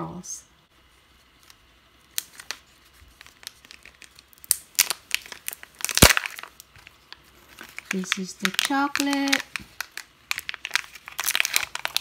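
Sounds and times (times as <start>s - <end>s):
foil wrapper crinkling and tearing: 1.3s - 12.0s
sharp crack: 4.4s - 6.6s.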